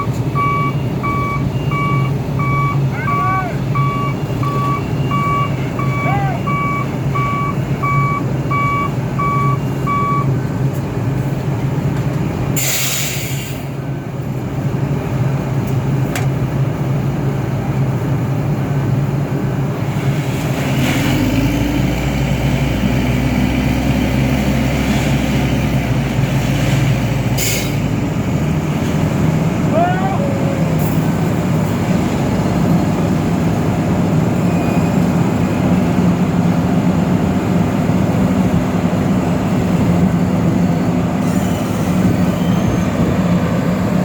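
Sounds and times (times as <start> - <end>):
reversing alarm beeping: 0.0 - 10.4
diesel machinery engine hum: 0.0 - 44.0.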